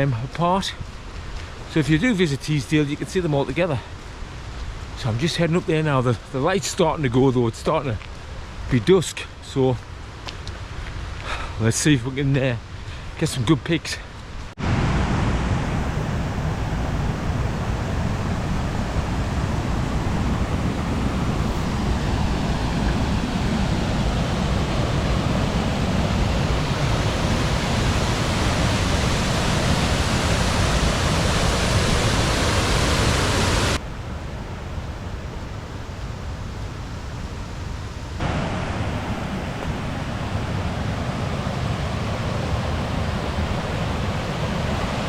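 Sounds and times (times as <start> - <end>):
waterfall rushing: 14.6 - 33.8, 38.2 - 45.0.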